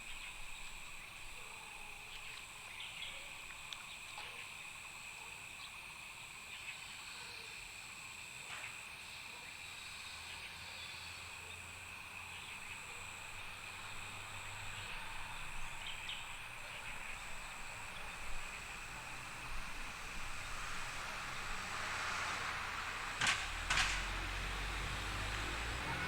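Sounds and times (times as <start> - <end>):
insects droning: 0.0 - 26.0
low engine-like rumble: 10.3 - 26.0.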